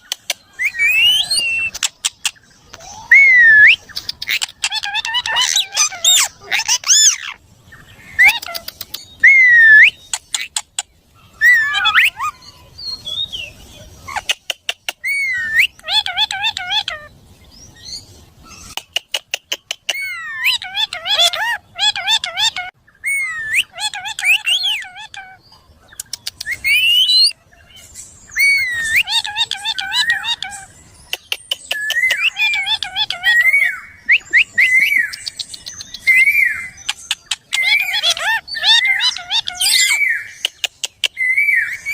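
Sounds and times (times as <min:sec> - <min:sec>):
parrot whistled calls: 0:02.8 - 0:03.9, 0:09.2 - 0:10.1, 0:11.4 - 0:12.5, 0:15.0 - 0:17.1, 0:19.9 - 0:25.4, 0:26.4 - 0:27.3, 0:31.8 - 0:35.2, 0:36.0 - 0:40.3
parrot whistling: 0:03.0 - 0:03.8, 0:09.2 - 0:10.0.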